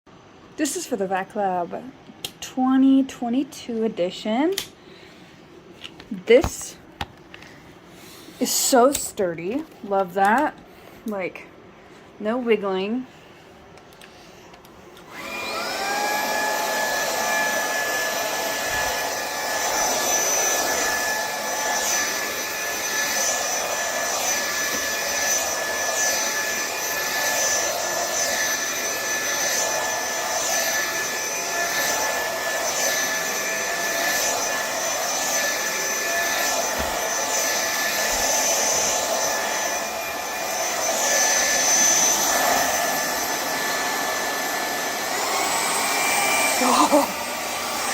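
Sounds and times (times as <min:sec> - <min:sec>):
vacuum cleaner motor whining: 0:14.9 - 0:47.9.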